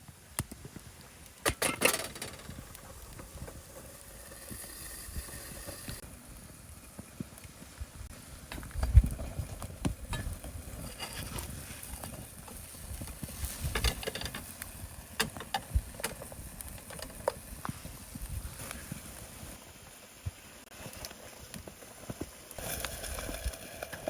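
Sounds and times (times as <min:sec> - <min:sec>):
clicks and knocks of cooking gear: 0:01.3 - 0:04.7, 0:08.5 - 0:17.8.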